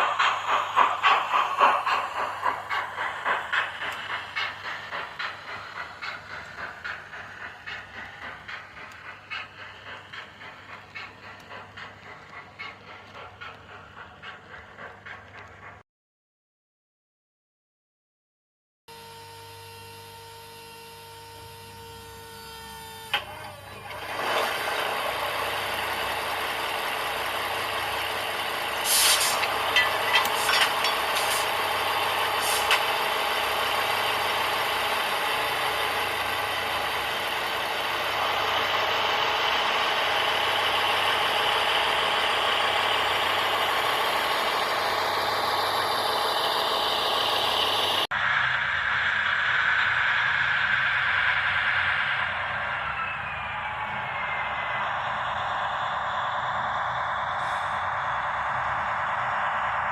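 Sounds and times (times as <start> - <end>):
model locomotive engine running: 0.0 - 15.8, 18.9 - 59.9
click: 8.2 - 9.2, 15.3 - 15.6
air-release hisses: 28.8 - 31.6, 32.3 - 32.9.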